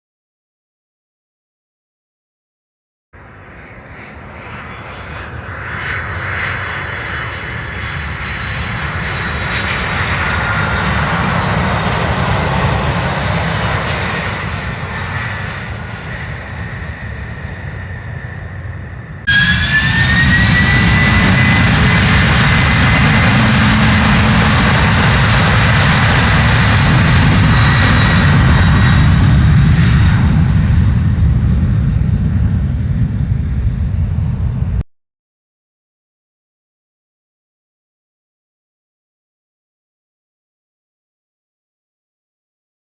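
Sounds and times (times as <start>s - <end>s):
airliner engine with high whine: 3.2s - 34.8s
airliner engines passing by: 3.2s - 34.8s.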